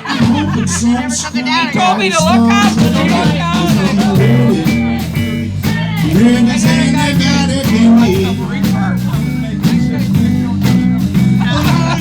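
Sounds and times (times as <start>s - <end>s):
guitar: 0.0s - 12.0s
live blues-rock band: 0.0s - 12.0s.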